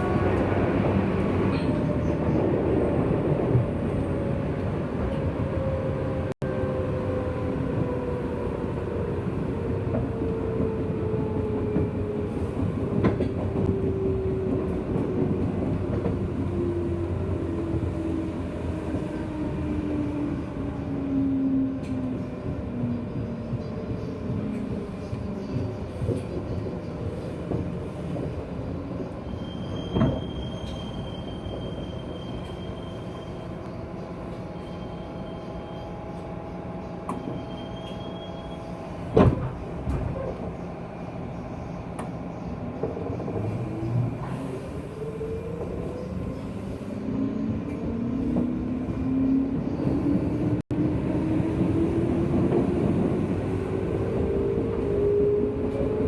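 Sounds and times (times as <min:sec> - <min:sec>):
train wheels on rails: 0:21.5 - 0:56.0.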